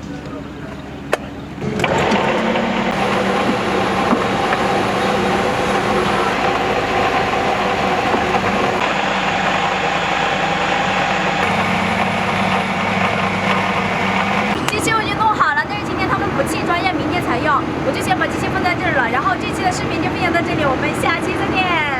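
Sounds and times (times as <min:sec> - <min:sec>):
high steady whine: 0:01.0 - 0:18.5
heavy machine running: 0:01.4 - 0:21.6.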